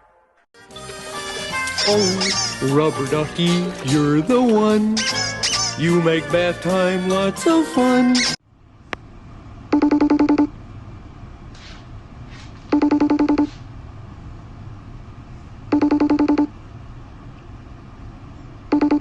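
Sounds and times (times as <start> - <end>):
electronic telephone ringing: 9.7 - 10.5, 12.7 - 13.5, 15.7 - 16.5, 18.7 - 19.0.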